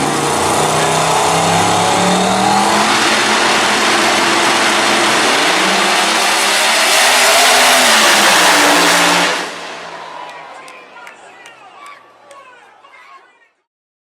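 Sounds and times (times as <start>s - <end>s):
drag racing engines revving: 0.0s - 11.2s.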